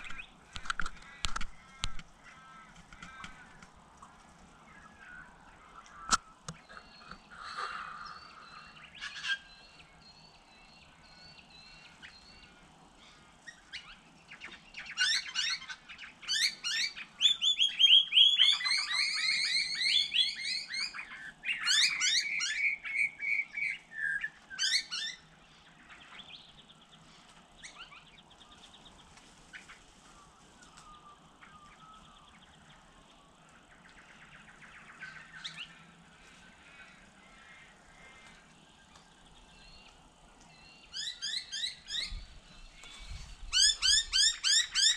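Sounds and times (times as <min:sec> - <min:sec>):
wild birds calling: 0:00.0 - 0:44.9.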